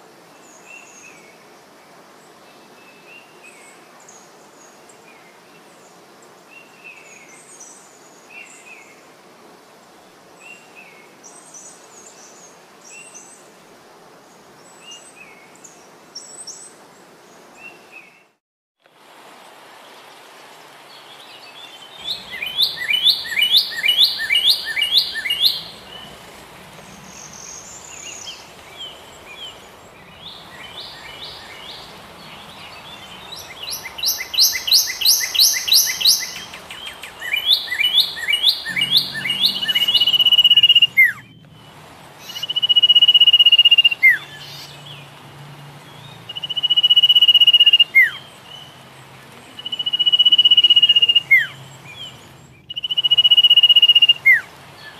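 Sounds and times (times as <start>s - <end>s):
bird chirping: 21.6s - 45.1s, 45.9s - 48.8s, 49.6s - 54.9s
bird whistled notes: 22.0s - 26.2s, 32.5s - 41.4s, 42.3s - 44.2s, 46.4s - 48.2s, 49.7s - 51.5s, 52.7s - 54.4s.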